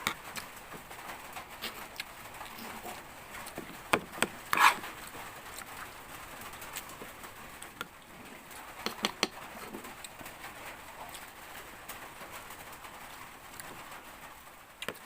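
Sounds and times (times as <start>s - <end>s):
heavy rain patter: 0.0s - 15.0s
sharp clicks and knocks: 8.8s - 9.4s.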